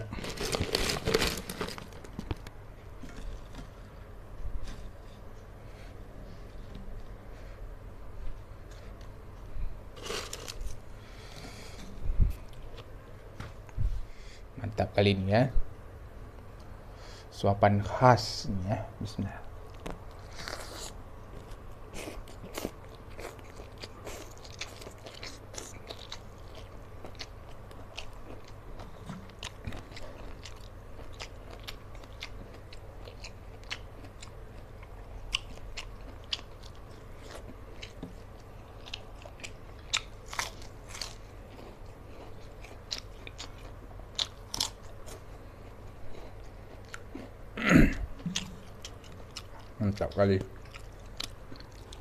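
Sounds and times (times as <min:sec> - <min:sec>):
person chewing and crunching: 0:19.7 - 0:52.0.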